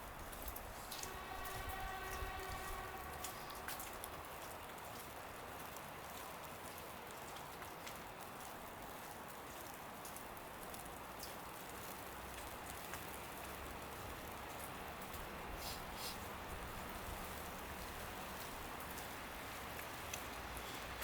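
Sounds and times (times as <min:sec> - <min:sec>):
wet snow pattering: 0:00.0 - 0:21.0
light ticks: 0:02.7 - 0:15.3, 0:18.3 - 0:20.8.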